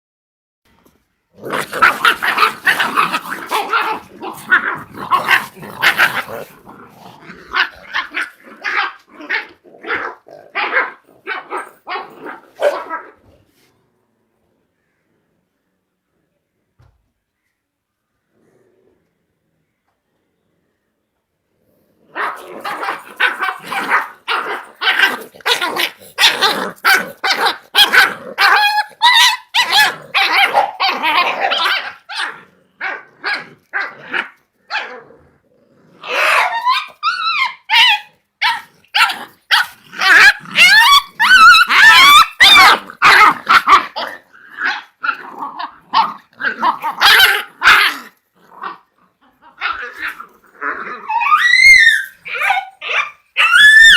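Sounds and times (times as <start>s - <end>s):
puppies growling: 1.3s - 13.4s, 21.6s - 53.9s
puppies barking: 1.4s - 12.9s, 22.2s - 32.3s, 36.0s - 48.8s, 51.0s - 53.9s
puppies yelping: 1.4s - 13.0s, 22.2s - 33.5s, 36.0s - 53.9s.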